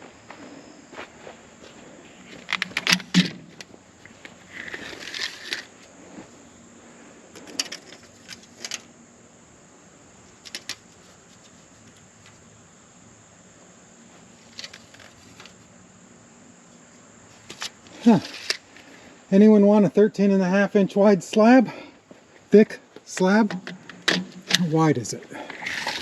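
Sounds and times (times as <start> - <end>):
handling clicks and knocks: 2.3 - 5.7, 10.4 - 10.9, 23.0 - 24.8.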